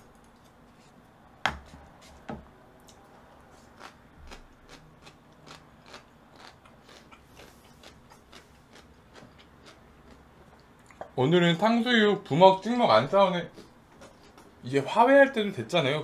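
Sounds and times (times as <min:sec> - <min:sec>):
person chewing: 0:02.9 - 0:11.1.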